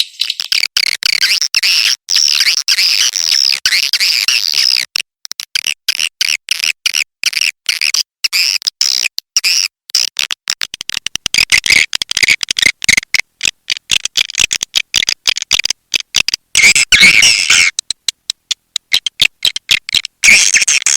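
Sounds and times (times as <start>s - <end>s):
recorded bird twittering chirps: 0.0s - 0.6s.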